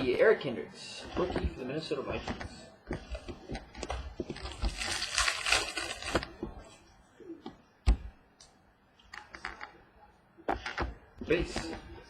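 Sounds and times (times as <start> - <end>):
trading cards rustling: 4.3 - 6.4.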